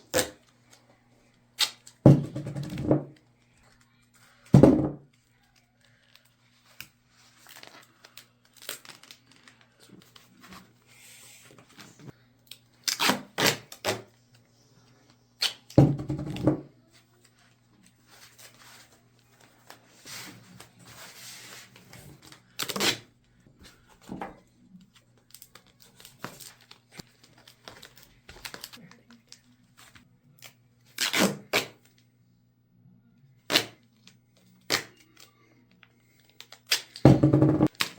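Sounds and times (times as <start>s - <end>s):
duct tape ripping: 1.6s - 1.9s, 12.8s - 14.1s, 22.6s - 23.1s, 30.9s - 31.8s, 33.5s - 33.8s, 34.7s - 35.0s, 36.4s - 37.1s
tape crinkling and rustling: 5.1s - 14.4s, 16.9s - 32.0s, 33.5s - 37.9s.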